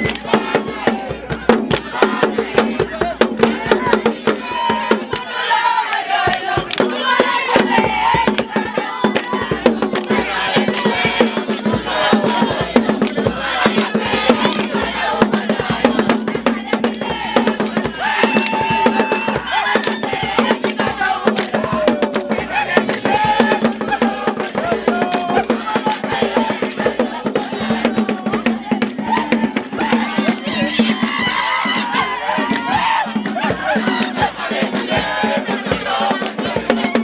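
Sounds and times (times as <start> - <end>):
clapping: 0.0 - 0.3, 9.1 - 9.4, 10.0 - 10.9, 14.5 - 14.7, 21.4 - 22.2, 31.8 - 34.2
fast hand drums: 0.0 - 37.0
group singing and shouting: 0.0 - 37.0.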